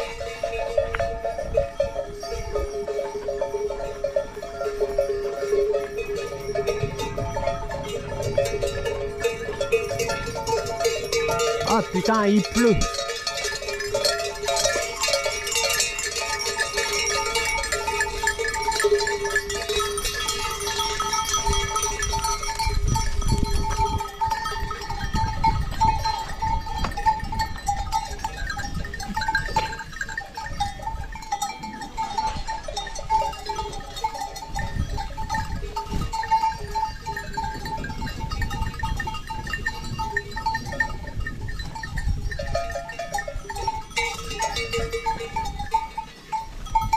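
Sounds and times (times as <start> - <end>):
livestock bells clinking: 0.0 - 46.9
low rumbles: 2.6 - 14.7.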